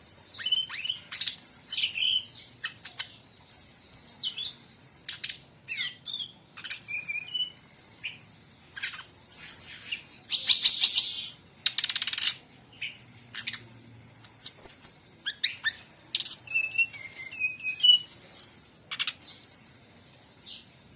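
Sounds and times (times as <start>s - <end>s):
bird singing: 0.0s - 20.9s
other birds calling: 0.0s - 20.9s.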